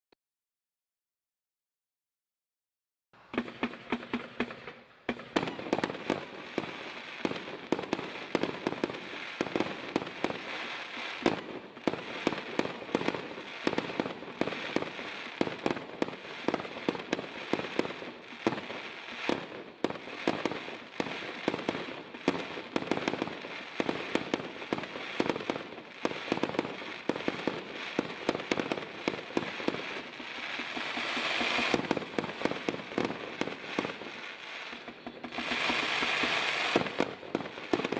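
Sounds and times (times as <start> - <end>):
fireworks firing rapidly: 3.3 - 37.9.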